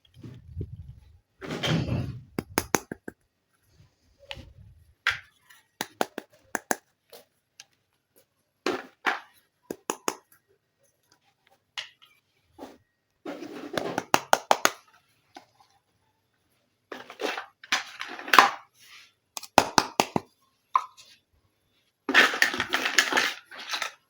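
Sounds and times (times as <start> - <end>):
plastic toy pieces handled: 22.1 - 24.0.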